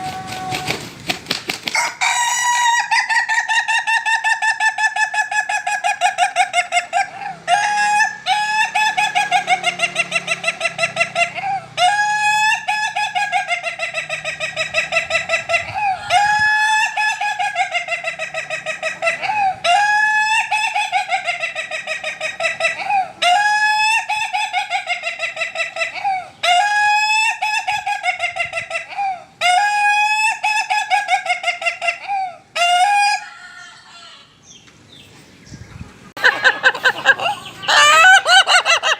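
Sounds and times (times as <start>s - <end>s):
rooster crowing: 0.0s - 0.8s, 1.7s - 3.7s, 32.6s - 34.4s, 36.2s - 38.9s.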